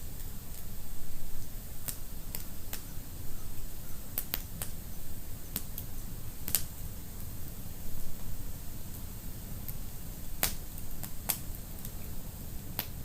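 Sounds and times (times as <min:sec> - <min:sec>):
wood fire crackling: 0:00.0 - 0:13.0
sharp fire pops: 0:01.8 - 0:02.9, 0:04.2 - 0:04.8, 0:05.5 - 0:06.8, 0:10.4 - 0:12.0, 0:12.8 - 0:13.0.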